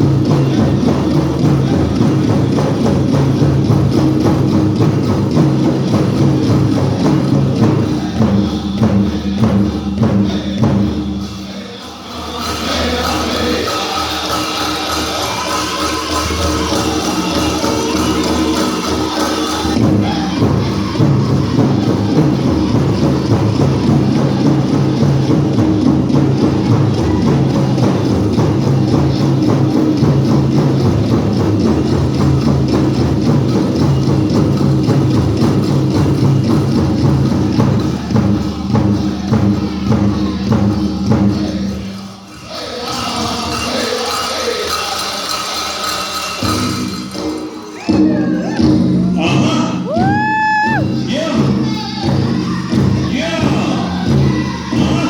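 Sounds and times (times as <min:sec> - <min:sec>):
big drum beats: 0:00.0 - 0:11.5, 0:12.3 - 0:55.0
group singing: 0:00.0 - 0:55.0
jingling bells: 0:42.6 - 0:49.4.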